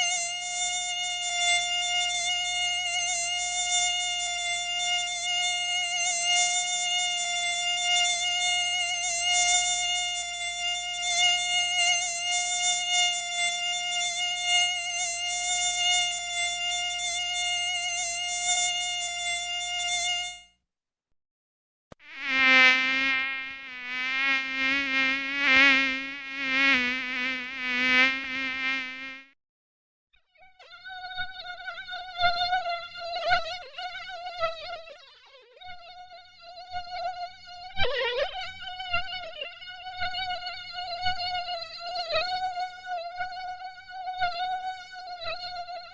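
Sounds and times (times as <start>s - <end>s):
mosquito whining: 0.0s - 20.4s, 22.0s - 29.4s.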